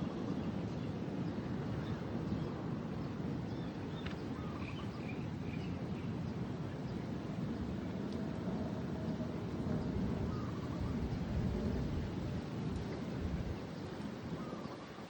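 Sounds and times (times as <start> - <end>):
wind: 0.0 - 15.0
faint bird chirps: 3.5 - 6.1.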